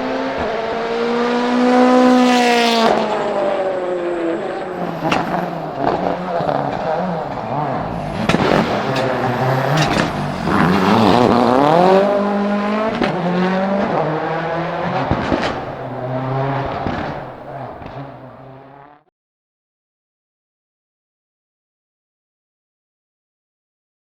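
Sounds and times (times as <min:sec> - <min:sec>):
rally car engine revving: 0:00.0 - 0:19.1
sharp engine cracks: 0:04.8 - 0:12.3.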